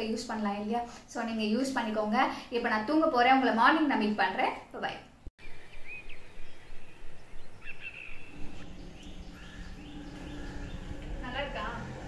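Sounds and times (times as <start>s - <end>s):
bird chirps: 5.4s - 11.9s
low steady hum: 8.1s - 12.0s.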